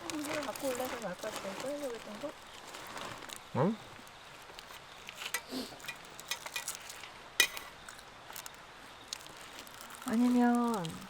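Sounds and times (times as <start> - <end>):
cutlery and dishes clinking: 5.3 - 7.7.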